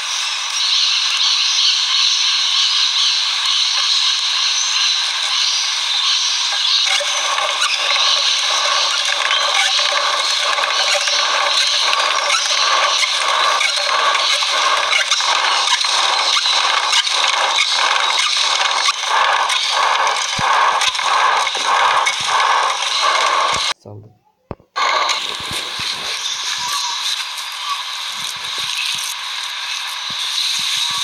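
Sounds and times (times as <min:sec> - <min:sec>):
rhythmic scraping: 0:06.4 - 0:23.8, 0:24.5 - 0:27.0.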